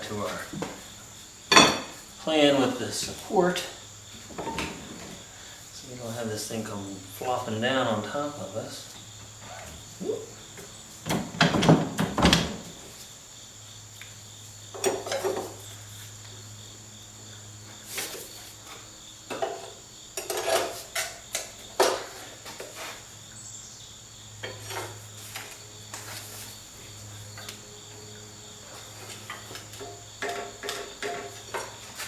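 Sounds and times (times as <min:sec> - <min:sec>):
metal tools clanking: 0:01.5 - 0:02.0, 0:29.2 - 0:32.0.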